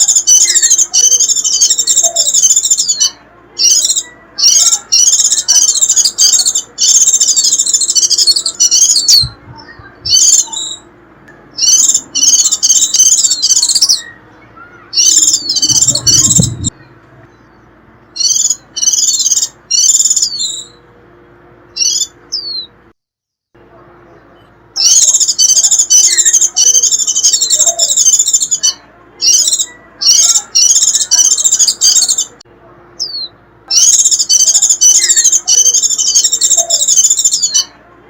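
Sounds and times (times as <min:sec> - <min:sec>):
bird twittering: 0:00.0 - 0:10.9, 0:11.5 - 0:20.8, 0:21.7 - 0:22.8, 0:24.8 - 0:32.4, 0:33.0 - 0:37.7
low rumble: 0:15.3 - 0:17.8.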